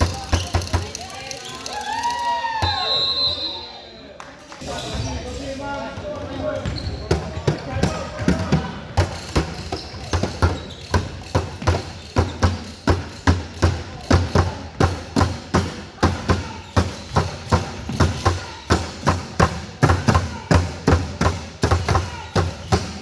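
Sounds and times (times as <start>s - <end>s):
basketballs bouncing on wooden floor: 0.0s - 1.2s, 5.9s - 23.0s.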